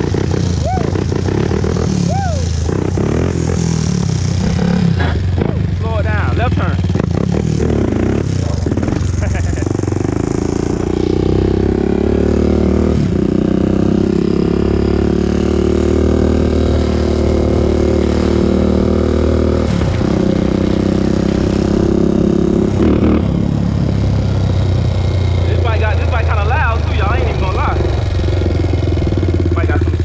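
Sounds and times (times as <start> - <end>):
quad engine running: 0.0 - 30.0.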